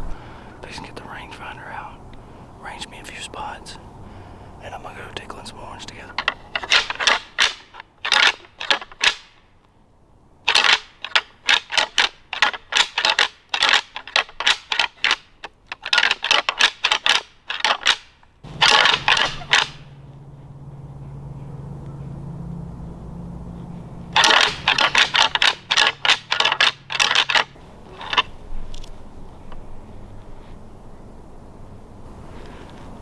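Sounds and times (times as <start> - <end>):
low steady hum: 0.0 - 8.0, 18.3 - 33.0
antlers clashing and clacking: 5.6 - 9.3, 10.5 - 22.3, 23.5 - 31.4.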